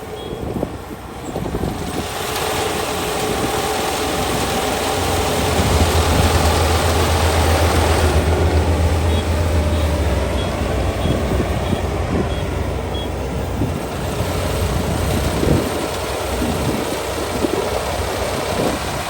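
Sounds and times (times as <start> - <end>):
combine harvester running: 0.0 - 19.0
deep steady hum: 4.4 - 19.0.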